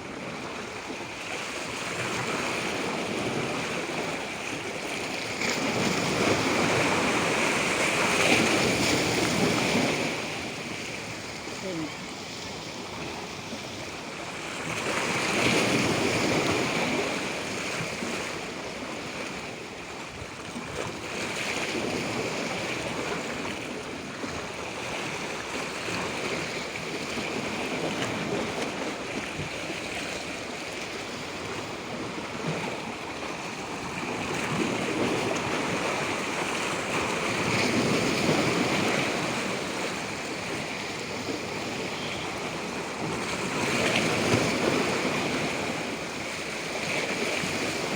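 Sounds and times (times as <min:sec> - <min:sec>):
waves washing in: 0:00.0 - 0:47.9.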